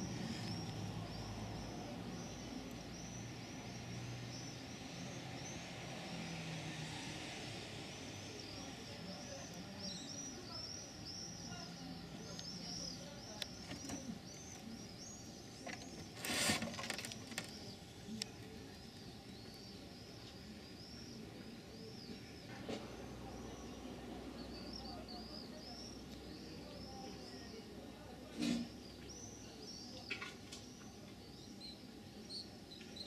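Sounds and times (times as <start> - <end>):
small birds chirping: 0.0 - 33.0
rustling scrape: 15.8 - 17.5.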